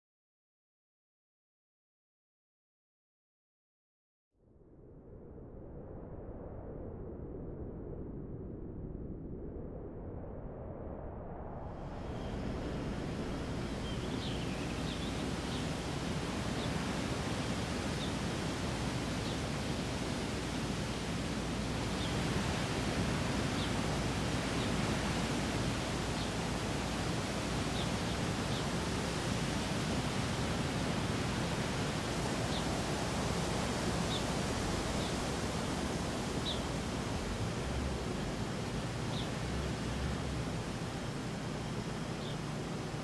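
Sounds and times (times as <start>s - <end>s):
outdoor background hiss: 12.0s - 43.0s
small birds chirping: 12.2s - 21.0s, 21.7s - 42.9s.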